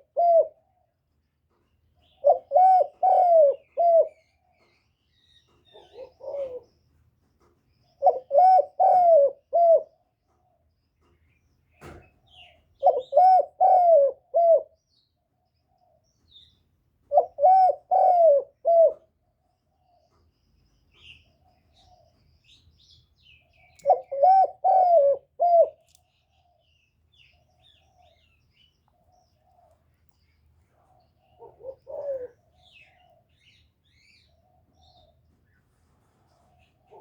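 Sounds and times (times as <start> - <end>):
dove cooing: 0.0 - 0.9, 2.0 - 4.7, 5.6 - 6.8, 7.9 - 10.1, 12.8 - 14.8, 17.0 - 19.2, 23.7 - 25.8, 30.7 - 35.2, 36.4 - 37.0.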